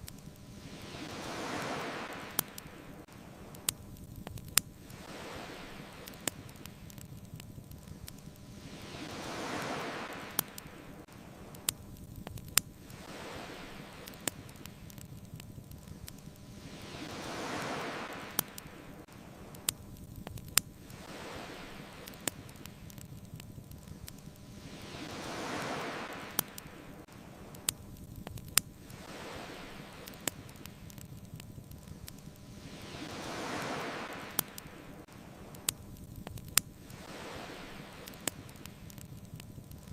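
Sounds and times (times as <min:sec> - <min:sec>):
bonfire crackling and popping: 0:00.0 - 0:39.9
ocean waves washing ashore: 0:00.0 - 0:39.9.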